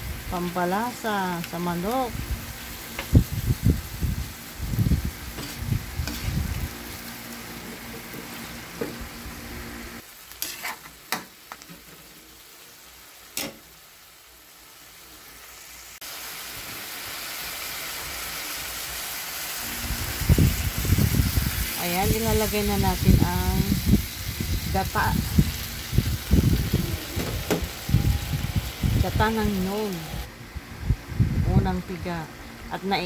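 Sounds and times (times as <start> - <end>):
chicken sizzling in oil: 0.0 - 30.3
stirring knocks and scrapes: 5.3 - 6.4.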